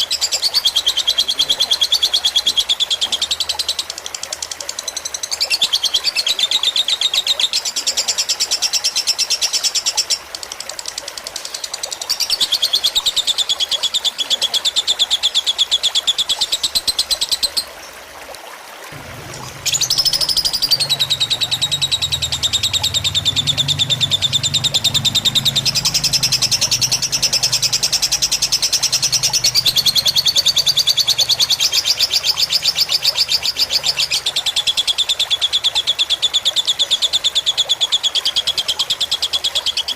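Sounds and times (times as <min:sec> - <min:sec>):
trickling water: 0:00.0 - 0:39.9
bird chattering trills: 0:19.0 - 0:34.9.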